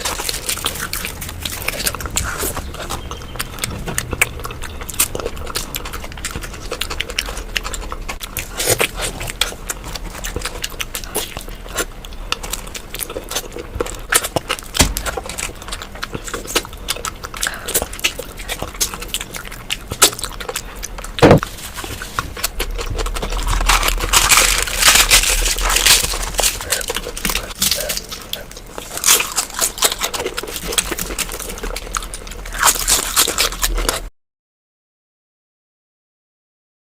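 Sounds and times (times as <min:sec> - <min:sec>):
close chewing and lip smacks: 0:00.0 - 0:34.1
loud sharp sound: 0:21.2 - 0:21.5.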